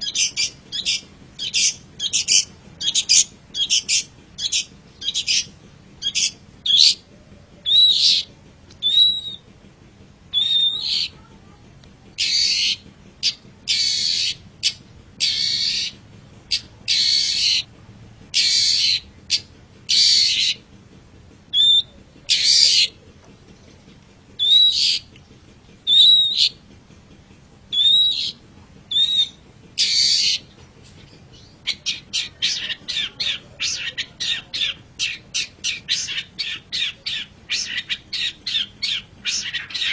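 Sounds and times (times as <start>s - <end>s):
shrike harsh scratchy calls: 12.2s - 17.7s, 18.4s - 20.6s, 27.8s - 30.4s, 31.7s - 39.9s.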